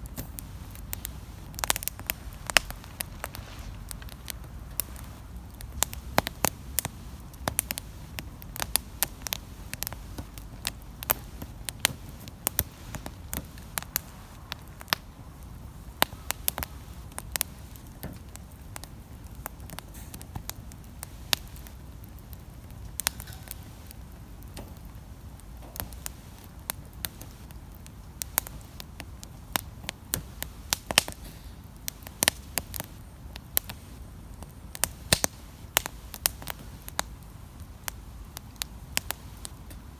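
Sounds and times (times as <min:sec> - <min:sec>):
low steady rumble: 0:00.0 - 0:30.7
campfire crackling and popping: 0:00.0 - 0:39.9.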